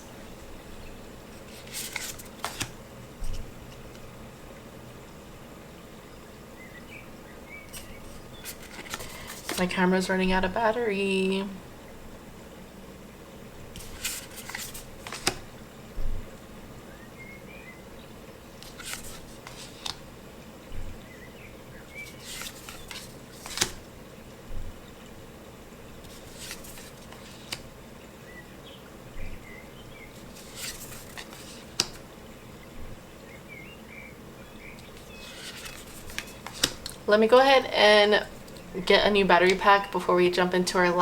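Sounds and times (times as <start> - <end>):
cards sliding and snapping: 1.3 - 3.4, 7.7 - 9.6, 13.8 - 15.5, 18.6 - 20.0, 21.9 - 23.9, 26.0 - 27.6, 30.2 - 32.0, 34.8 - 37.0.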